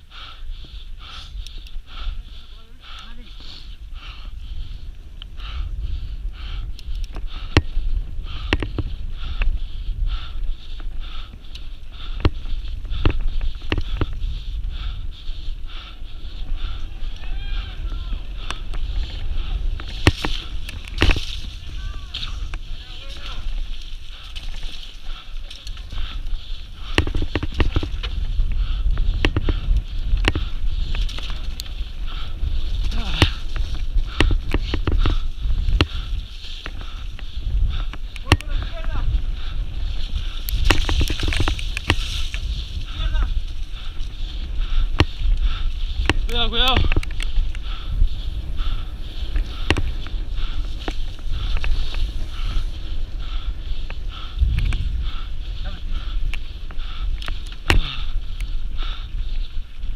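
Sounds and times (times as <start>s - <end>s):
steady rumbling noise: 0.0s - 59.9s
wind buffeting microphone: 0.0s - 59.9s.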